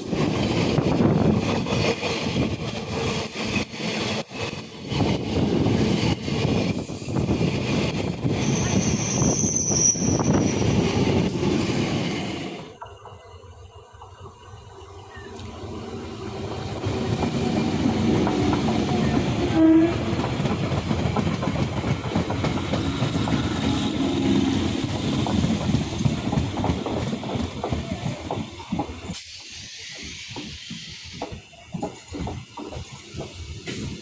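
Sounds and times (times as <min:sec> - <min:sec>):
train passing at speed: 0:00.0 - 0:34.0
wheels clattering on rails: 0:16.7 - 0:34.0.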